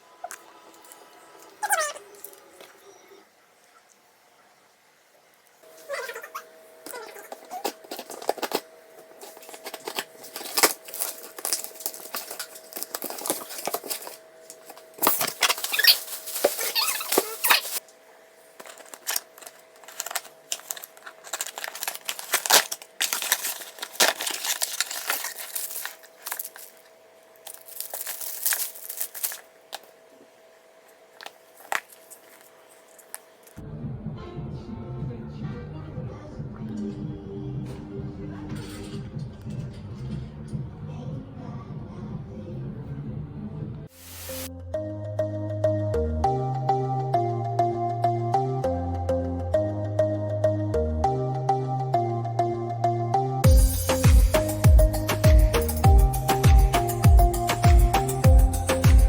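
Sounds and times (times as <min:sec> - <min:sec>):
plastic and paper crinkling: 0:06.9 - 0:17.9, 0:18.5 - 0:30.3, 0:30.9 - 0:33.6, 0:44.0 - 0:44.5.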